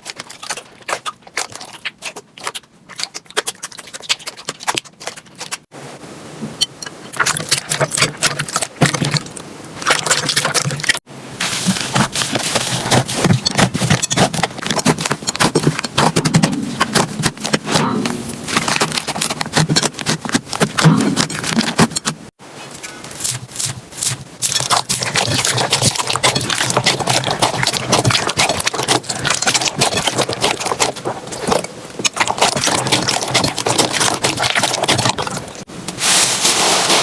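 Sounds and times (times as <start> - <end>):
slime crackling and popping: 23.2 - 35.6.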